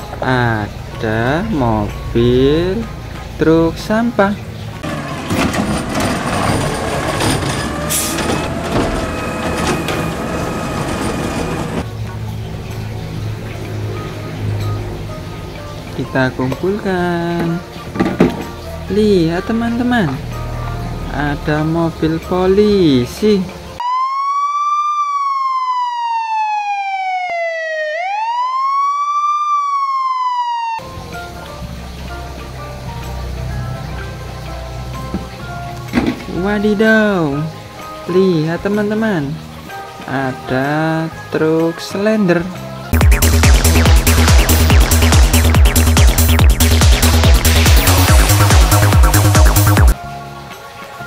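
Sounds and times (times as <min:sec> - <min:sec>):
garbage truck engine whining: 0:04.8 - 0:11.9, 0:43.0 - 0:50.0
police siren wailing: 0:06.0 - 0:11.9, 0:23.8 - 0:30.9.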